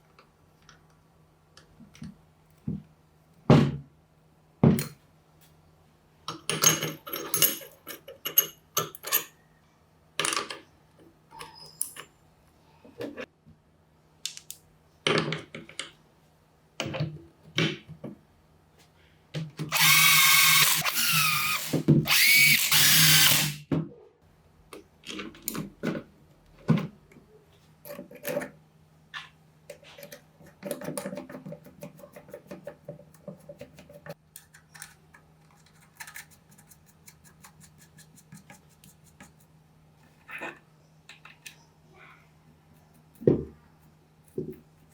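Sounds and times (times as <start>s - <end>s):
electric drill motor running: 19.7s - 23.6s.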